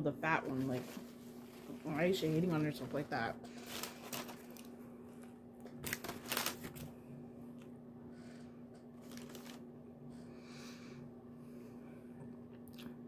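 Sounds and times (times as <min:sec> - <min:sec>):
person chewing: 0:12.5 - 0:13.0.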